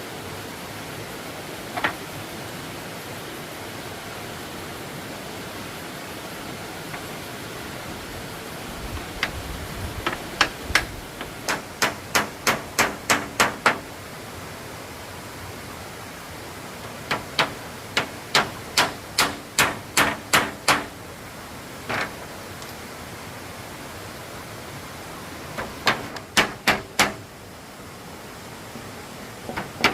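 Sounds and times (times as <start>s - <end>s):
steady hiss: 0.0s - 29.9s
hammer striking wood: 10.0s - 13.8s, 17.1s - 21.0s, 25.6s - 27.2s, 29.5s - 29.9s.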